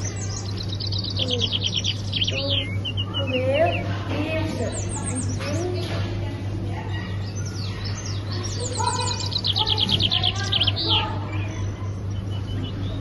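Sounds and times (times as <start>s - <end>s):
songbirds chirping and trilling: 0.0s - 13.0s
steady low hum: 0.0s - 13.0s.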